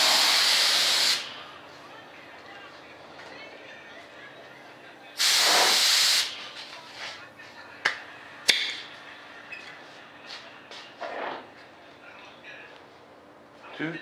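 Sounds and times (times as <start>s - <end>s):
spray can hissing: 0.0s - 1.3s, 5.2s - 6.3s.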